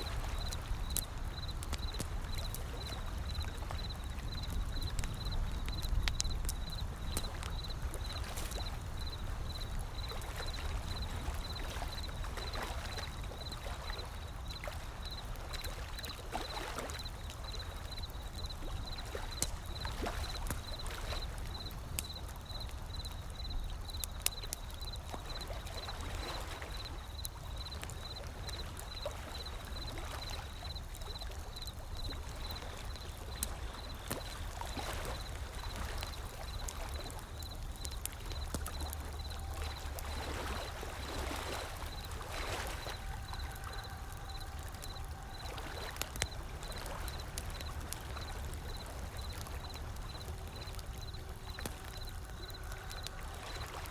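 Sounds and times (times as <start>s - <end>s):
wood fire crackling: 0.0s - 53.9s.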